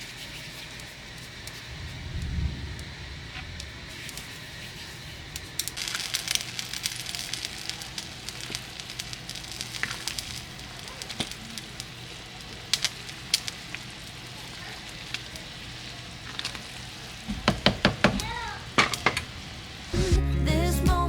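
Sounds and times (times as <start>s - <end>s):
food sizzling in a pan: 3.8s - 20.0s.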